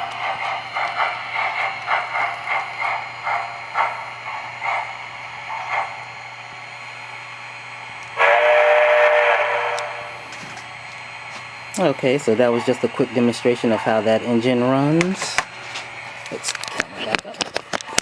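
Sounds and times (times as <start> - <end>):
model train steam chuffs: 0.0 - 17.2
loud steam whistle: 8.2 - 10.2.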